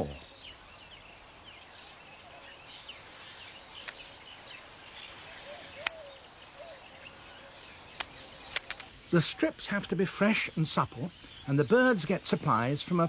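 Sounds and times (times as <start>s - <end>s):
faint bird chirps: 0.0s - 9.4s
insect chirping: 0.0s - 13.0s.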